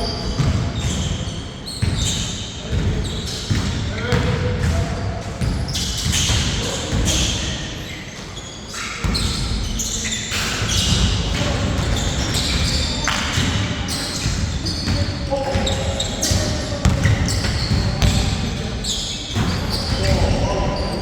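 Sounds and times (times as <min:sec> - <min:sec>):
shoe squeaks: 0:00.0 - 0:04.2, 0:05.5 - 0:21.0
basketball bouncing: 0:14.3 - 0:18.6.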